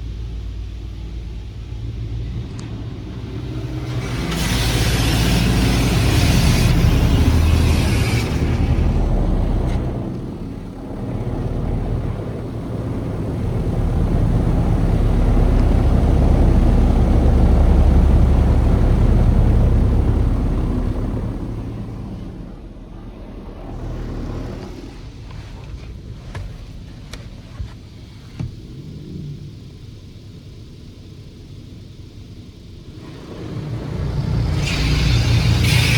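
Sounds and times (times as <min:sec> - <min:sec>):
deep rumble: 0:00.0 - 0:30.6
water spray hissing: 0:03.4 - 0:09.0.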